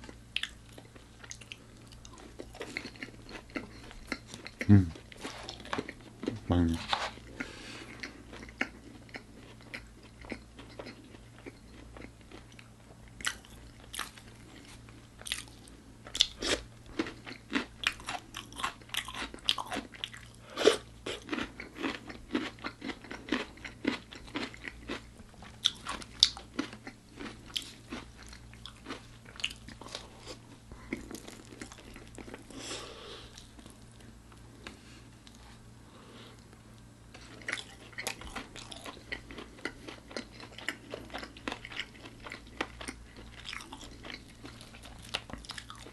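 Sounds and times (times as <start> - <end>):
crunching and chewing fried chicken: 0.0 - 45.9
faint low hum: 0.0 - 45.9.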